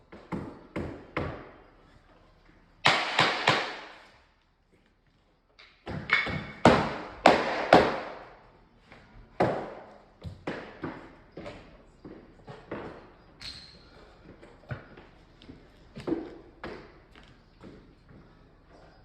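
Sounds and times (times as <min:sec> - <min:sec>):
sharp knocks on timber floorboards: 0:02.8 - 0:04.0, 0:05.8 - 0:08.3, 0:09.4 - 0:11.0.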